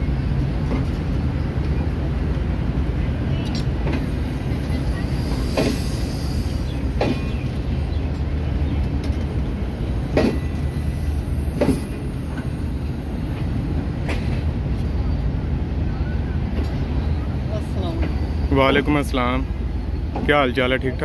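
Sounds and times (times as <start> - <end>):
train wheels rumbling on rails: 0.0 - 21.0
wheels clacking over rail joints: 3.4 - 14.6.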